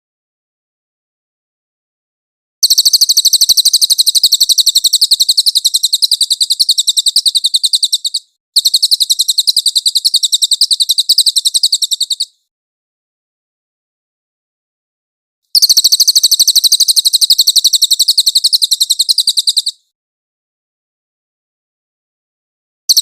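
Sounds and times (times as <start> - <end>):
bird singing high-pitched trill: 2.6 - 12.4, 15.6 - 19.9.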